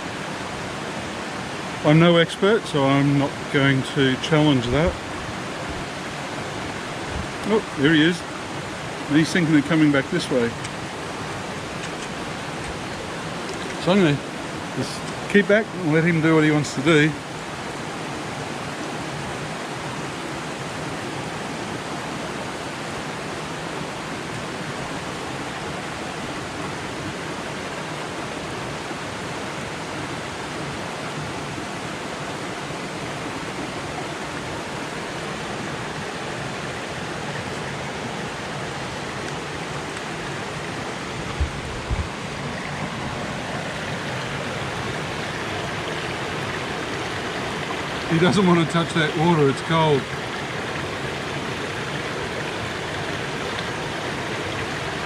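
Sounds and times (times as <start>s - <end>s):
creek water rushing over rocks: 0.0s - 55.0s
low thumps: 41.2s - 42.2s.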